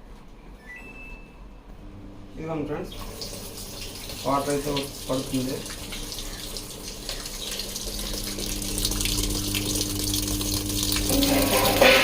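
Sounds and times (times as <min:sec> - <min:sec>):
steady low hum: 0:01.3 - 0:12.0
water pouring into washing machine: 0:02.8 - 0:12.0.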